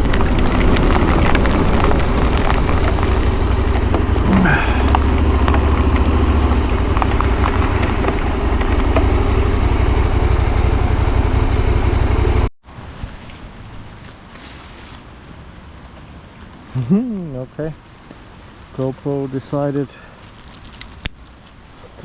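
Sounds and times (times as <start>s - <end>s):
motorcycle engine hum: 0.0s - 12.6s
wind and road noise: 0.0s - 22.0s.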